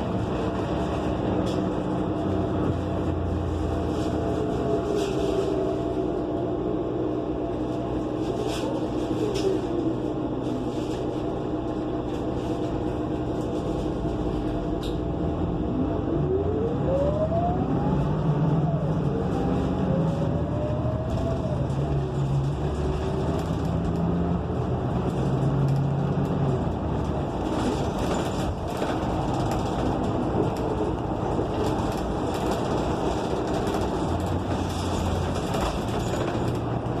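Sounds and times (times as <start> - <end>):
engine humming: 0.0 - 37.0
rising and falling tone: 15.8 - 22.0.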